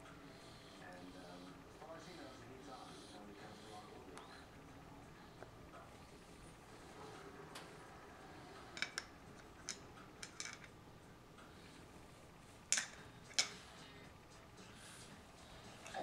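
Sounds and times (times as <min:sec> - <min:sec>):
hard toys clicking and tapping: 0:08.7 - 0:10.7, 0:12.7 - 0:13.6.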